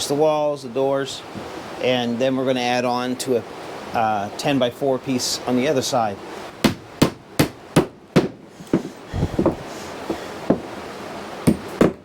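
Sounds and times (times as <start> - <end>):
hammer striking wood: 6.6 - 10.7, 11.4 - 12.0.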